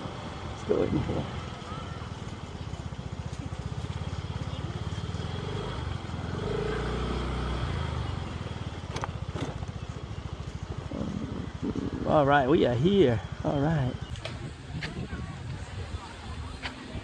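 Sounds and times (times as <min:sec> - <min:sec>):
motorcycle engine running: 0:14.1 - 0:17.0.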